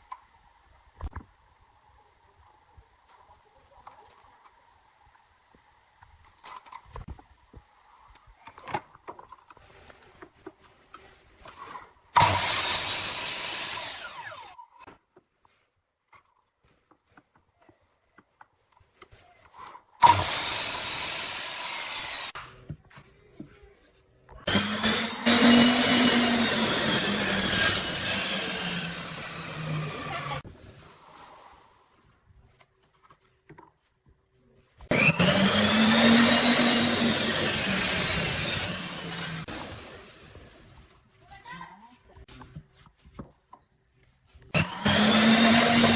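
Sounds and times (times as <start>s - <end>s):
power tool cutting wood: 12.2s - 14.8s, 20.0s - 22.4s, 24.4s - 30.4s, 34.9s - 40.7s, 44.6s - 45.9s.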